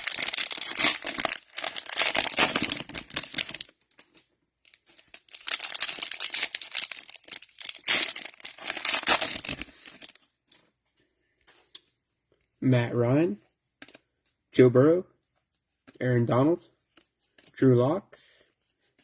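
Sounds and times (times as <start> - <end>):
cellophane crinkling and tearing: 0.0 - 10.3.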